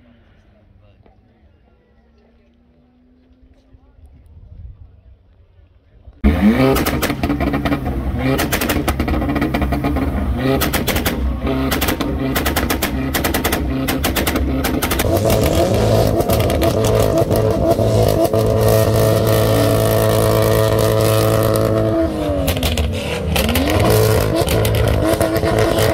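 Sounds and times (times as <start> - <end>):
exhaust crackling and popping: 6.2 - 25.9
sports car engine revving: 6.2 - 25.9.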